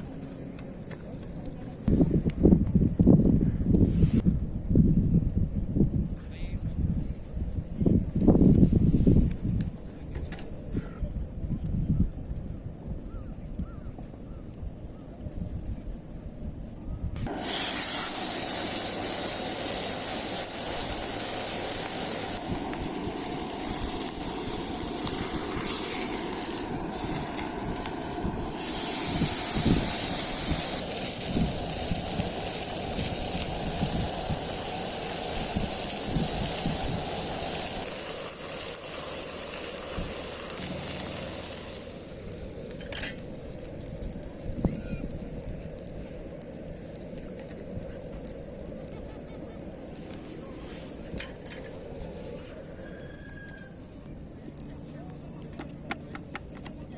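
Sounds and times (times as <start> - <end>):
steak sizzling in a hot pan: 17.3 - 52.0.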